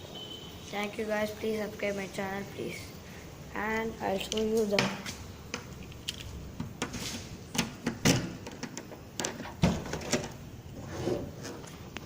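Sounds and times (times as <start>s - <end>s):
irregular clicks and knocks: 4.3s - 10.4s.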